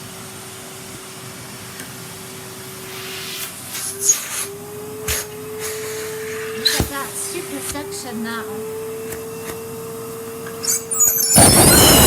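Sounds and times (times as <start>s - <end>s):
vacuum cleaner motor whine: 0.0s - 12.0s.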